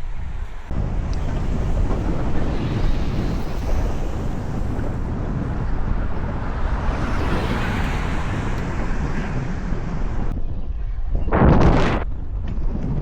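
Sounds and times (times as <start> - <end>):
road traffic noise: 0.0 - 10.4
wind rushing over microphone: 0.0 - 13.0.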